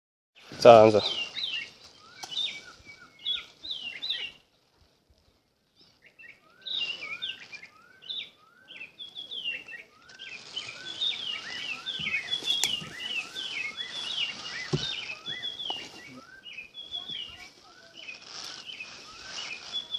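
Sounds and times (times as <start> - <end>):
birds chirping: 0.4 - 4.6, 5.3 - 19.9.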